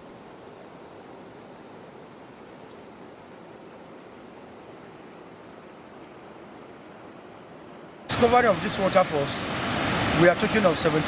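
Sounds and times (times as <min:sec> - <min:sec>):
waterfall rushing: 0:08.1 - 0:11.0.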